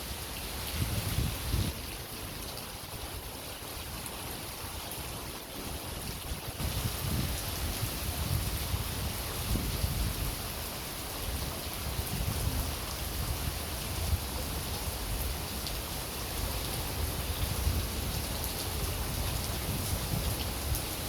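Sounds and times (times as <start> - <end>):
heavy rain pouring: 0.0 - 21.0
wind rumble on microphone: 0.6 - 2.0, 5.7 - 15.6, 16.4 - 21.0.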